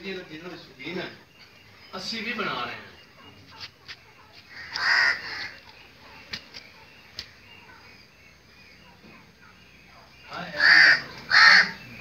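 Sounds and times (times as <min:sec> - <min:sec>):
bird harsh call: 0:01.0 - 0:12.0
faint sharp clicks: 0:05.6 - 0:07.4.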